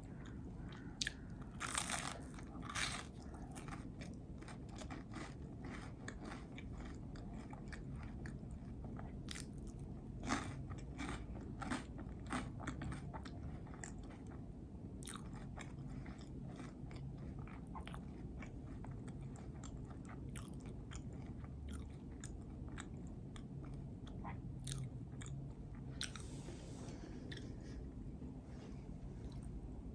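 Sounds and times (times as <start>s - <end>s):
chewing sandwich: 0.1s - 26.3s.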